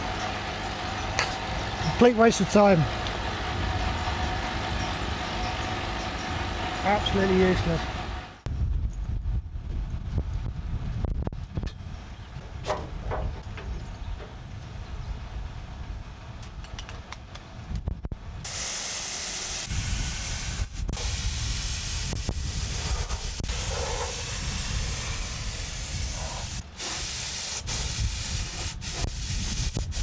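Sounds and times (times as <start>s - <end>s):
paint spray gun hissing: 18.5s - 30.0s.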